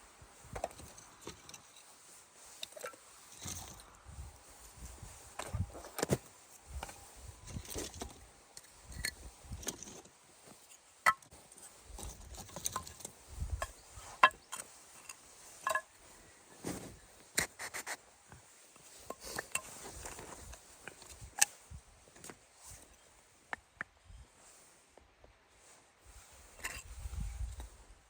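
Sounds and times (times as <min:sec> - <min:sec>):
gear knocks and scrapes: 0:04.8 - 0:16.0.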